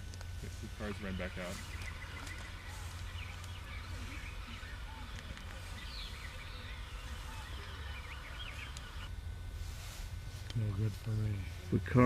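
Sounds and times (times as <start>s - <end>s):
small birds chirping: 0.0s - 9.2s
steady low rumble: 0.0s - 12.0s.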